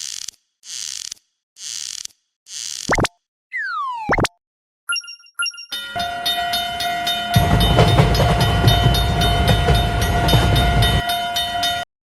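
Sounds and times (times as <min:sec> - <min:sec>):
low rumble of train running: 0:05.8 - 0:11.9.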